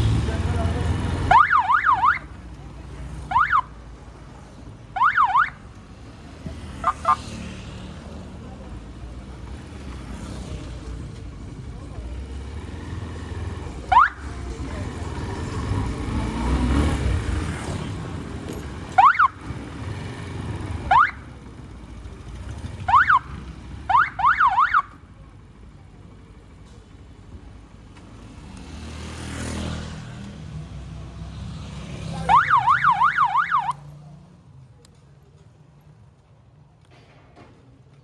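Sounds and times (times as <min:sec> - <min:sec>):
vehicle passing: 0:00.0 - 0:03.6, 0:04.4 - 0:24.8, 0:28.1 - 0:34.5
street traffic rumble: 0:00.0 - 0:38.0.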